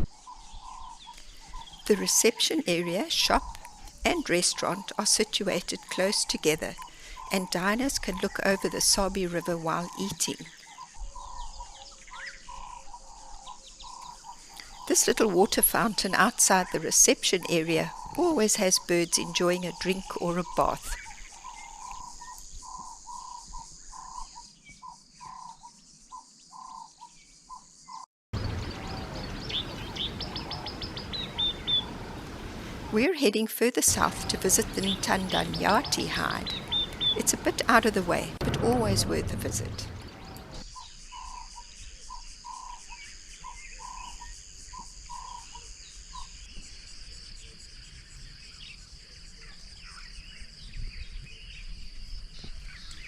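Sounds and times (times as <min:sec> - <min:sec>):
small bird chirps: 0:19.6 - 0:32.1, 0:33.9 - 0:46.7
small bird high chirps: 0:27.9 - 0:32.0, 0:33.9 - 0:41.6
insect trill: 0:33.9 - 0:50.0.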